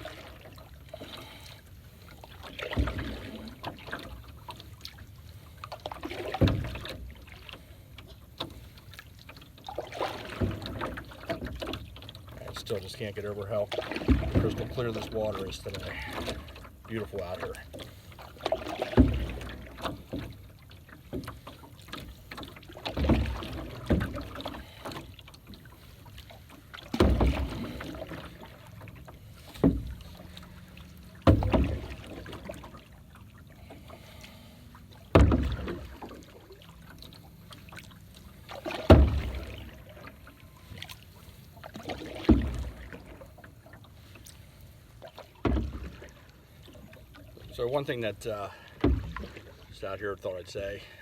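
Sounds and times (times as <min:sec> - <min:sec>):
paddle knocking canoe side: 0:00.0 - 0:44.3, 0:45.0 - 0:50.7
paddle swishing water: 0:00.0 - 0:51.0.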